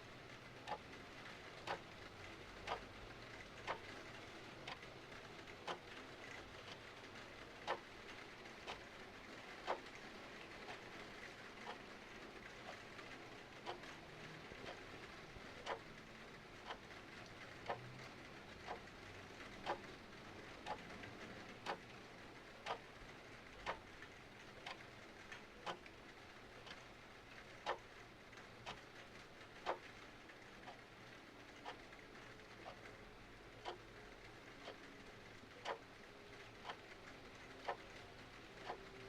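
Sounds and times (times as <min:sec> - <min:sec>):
clock ticking: 0:00.5 - 0:39.0.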